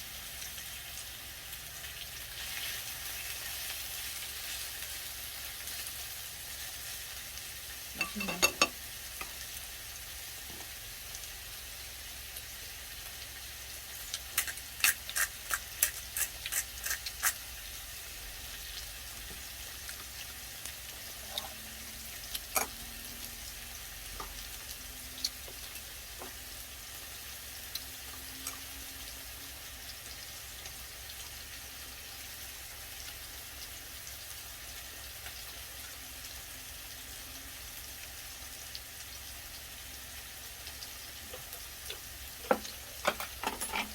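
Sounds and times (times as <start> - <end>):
beef sizzling in hot oil: 0.0 - 43.9.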